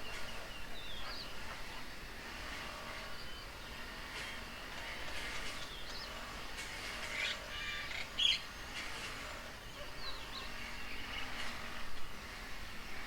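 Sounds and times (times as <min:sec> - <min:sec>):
birds chirping and calling: 0:07.0 - 0:08.8.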